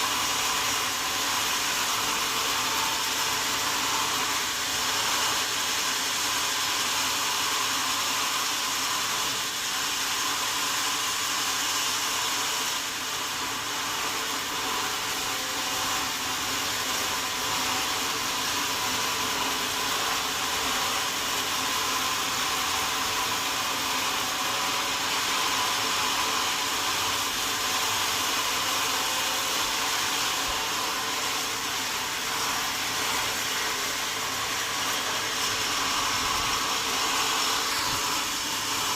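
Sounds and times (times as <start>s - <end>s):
sawmill saw whirring: 0.0s - 38.9s.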